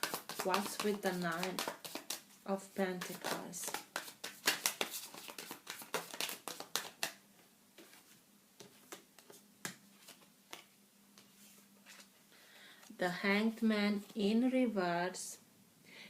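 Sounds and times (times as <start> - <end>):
cards being shuffled: 0.0 - 2.2, 2.9 - 7.2, 7.8 - 12.1.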